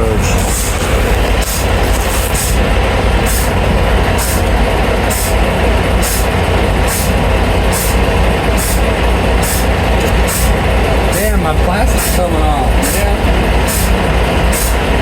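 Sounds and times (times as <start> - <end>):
diesel truck engine idling: 0.0 - 15.0
short air hiss: 7.8 - 8.0, 9.4 - 10.6.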